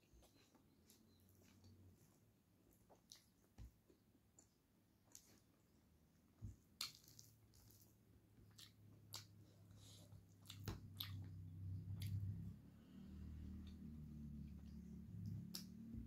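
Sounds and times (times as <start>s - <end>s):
wet chewing and lip-smacking: 2.9s - 3.5s, 6.8s - 12.4s.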